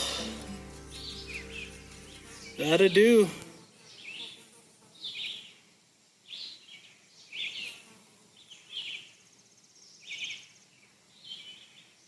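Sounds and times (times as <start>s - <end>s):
bird raspy chirps: 0.0s - 2.8s.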